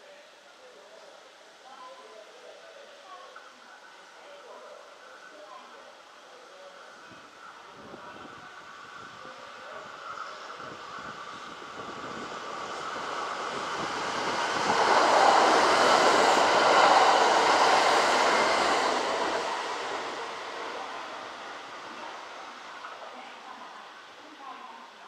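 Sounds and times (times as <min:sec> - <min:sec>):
electric train passing: 0:07.4 - 0:24.2.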